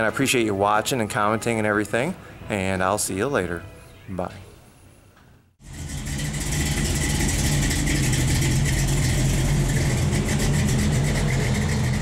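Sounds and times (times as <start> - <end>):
car engine idling: 5.6 - 12.0.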